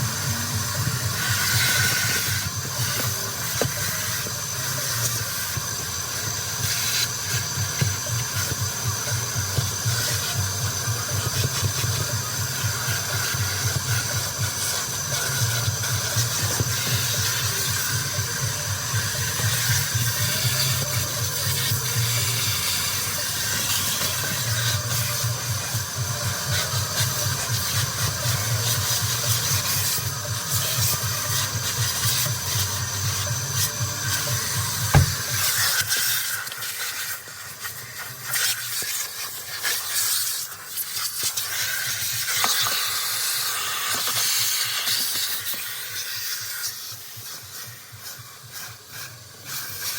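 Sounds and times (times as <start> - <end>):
vacuum motor hum: 0.0 - 36.6
vacuum suction hiss: 0.0 - 49.9.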